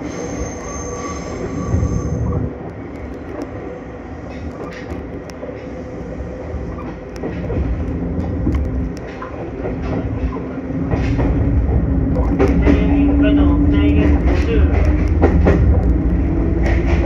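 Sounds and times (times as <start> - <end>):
train hum: 0.0 - 17.0
train wheels rumbling on rail: 0.0 - 17.0.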